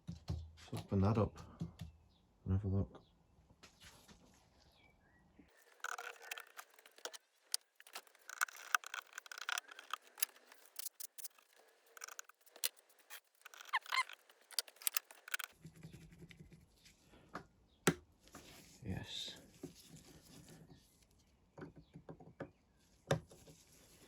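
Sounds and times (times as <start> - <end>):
metallic tool clicks and scrapes: 5.6 - 15.5.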